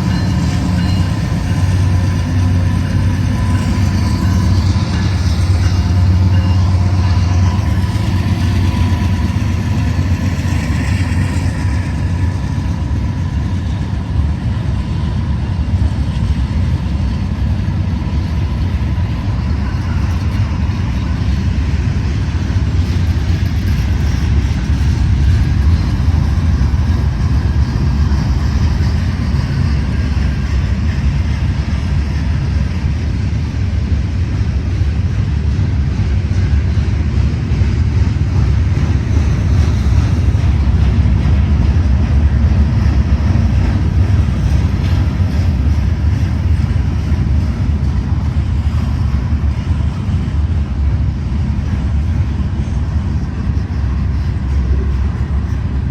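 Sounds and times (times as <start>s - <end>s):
freight train rumbling: 0.0s - 55.9s.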